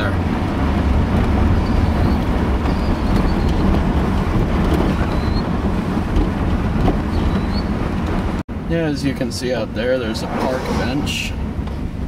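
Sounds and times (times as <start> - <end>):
wind noise: 0.0 - 8.4
car engine: 0.0 - 12.0
road noise: 0.0 - 12.0.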